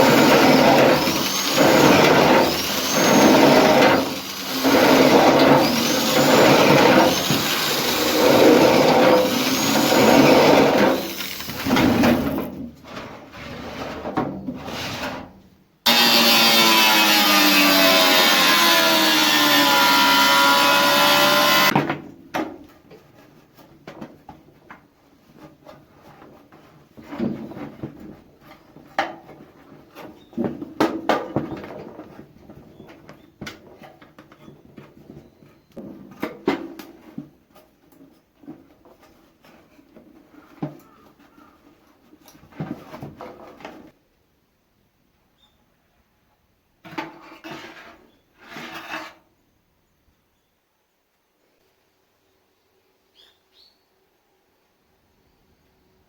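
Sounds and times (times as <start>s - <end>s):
power tool running: 0.0s - 12.5s, 15.9s - 21.8s.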